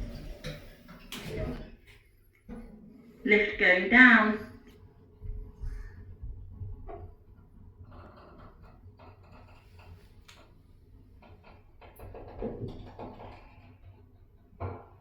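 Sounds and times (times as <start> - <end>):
lift car knocks and rattles: 0.0 - 1.8, 11.2 - 13.9.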